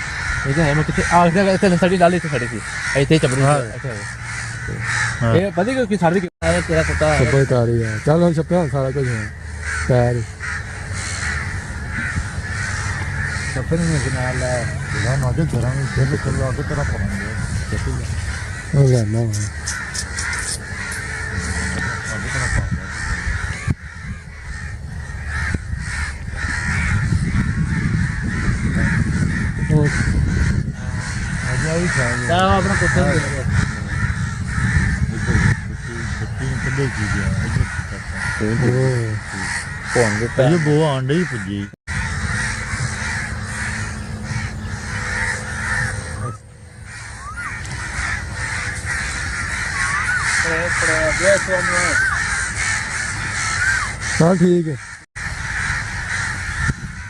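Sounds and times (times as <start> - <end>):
crows cawing: 0.0 - 57.0
low rumble: 8.2 - 38.5.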